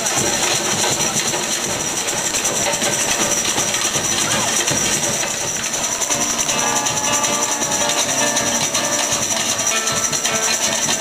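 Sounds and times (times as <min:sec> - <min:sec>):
fast dense percussion: 0:00.0 - 0:11.0
high jingling shimmer: 0:01.9 - 0:11.0
melody line: 0:05.9 - 0:10.8.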